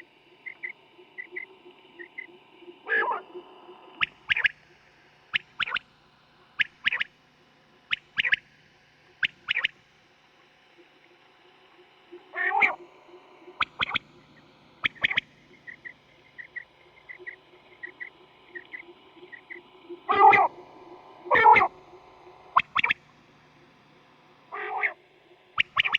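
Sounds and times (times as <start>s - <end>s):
quail calling: 12.4s - 12.8s, 14.8s - 20.6s, 21.3s - 21.8s, 24.5s - 25.0s.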